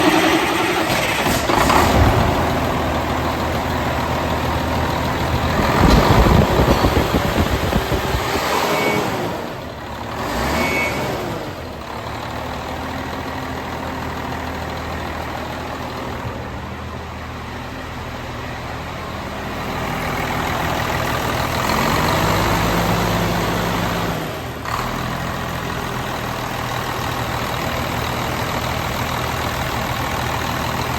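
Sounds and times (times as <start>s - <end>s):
diesel truck engine idling and revving: 0.0s - 30.9s.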